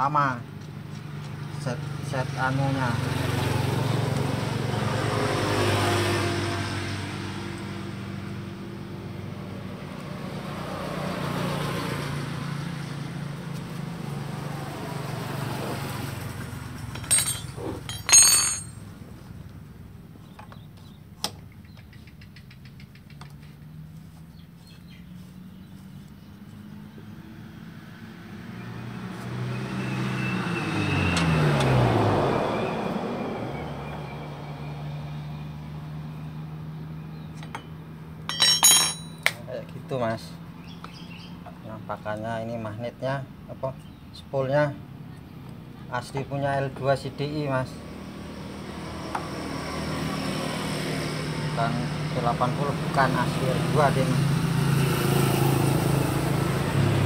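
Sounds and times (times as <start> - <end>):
two-stroke engine idling and revving: 0.5 - 19.3, 44.6 - 57.0
sharp metallic clinks: 16.8 - 18.9, 38.3 - 39.4.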